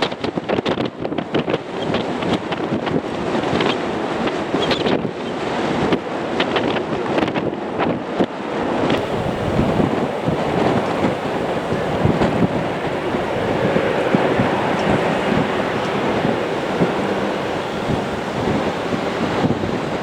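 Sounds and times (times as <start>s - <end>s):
wind buffeting microphone: 0.0s - 20.0s
steady rushing noise: 9.0s - 20.0s.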